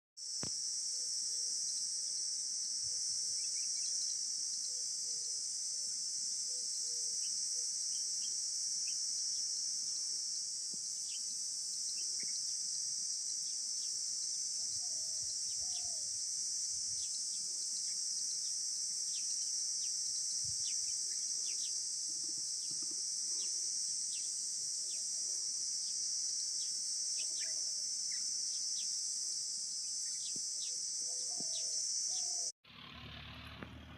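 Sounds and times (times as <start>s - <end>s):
insect chorus: 0.2s - 33.9s
bird chirps: 26.6s - 28.9s, 30.0s - 32.5s.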